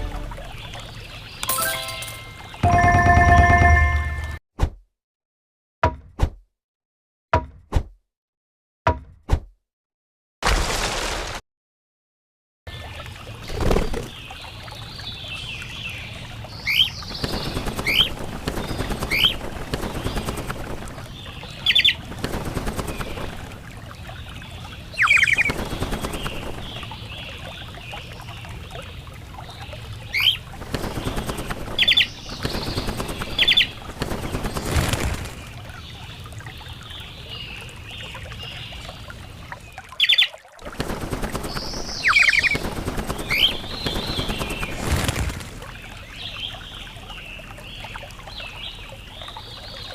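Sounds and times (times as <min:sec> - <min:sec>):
wings flapping: 0:13.5 - 0:14.1, 0:17.0 - 0:23.8, 0:25.0 - 0:27.0, 0:30.2 - 0:35.8, 0:40.6 - 0:45.8
birds chirping: 0:24.1 - 0:28.5, 0:29.5 - 0:39.0, 0:41.2 - 0:45.1.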